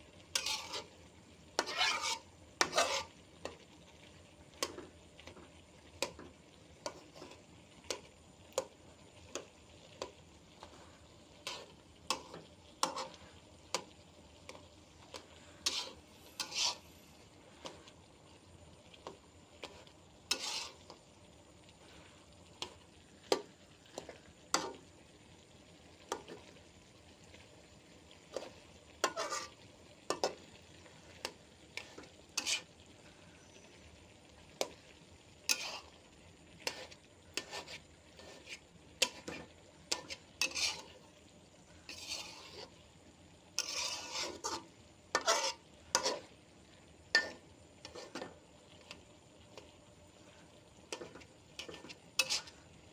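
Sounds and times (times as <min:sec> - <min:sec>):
utensil scraping and knocking pan: 0:00.3 - 0:00.9, 0:01.6 - 0:03.6, 0:14.5 - 0:16.8, 0:28.3 - 0:30.4, 0:36.7 - 0:40.9, 0:41.9 - 0:42.7, 0:43.6 - 0:46.2, 0:51.0 - 0:52.6.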